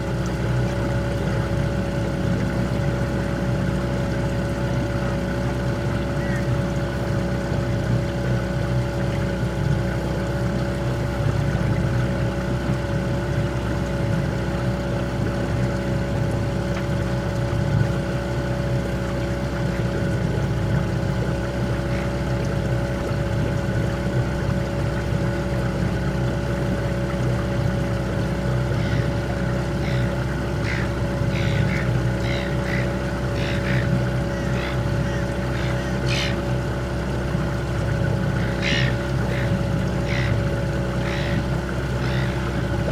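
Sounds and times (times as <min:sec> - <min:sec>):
outboard motor running: 0:00.0 - 0:42.9.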